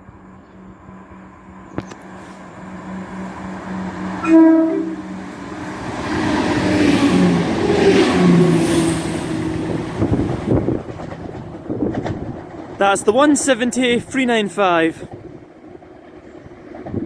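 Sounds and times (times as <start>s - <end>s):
train engine and wheel noise: 0.0s - 17.0s
train horn blast: 2.2s - 5.4s.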